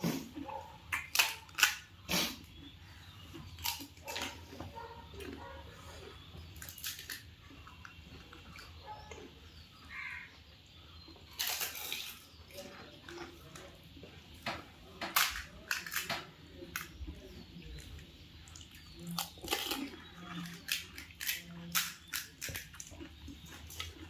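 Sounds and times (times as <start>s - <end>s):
crisp shells crunching when chewed: 0.8s - 2.4s, 3.4s - 4.4s, 6.4s - 8.8s, 11.2s - 13.6s, 15.1s - 16.9s, 17.7s - 24.0s.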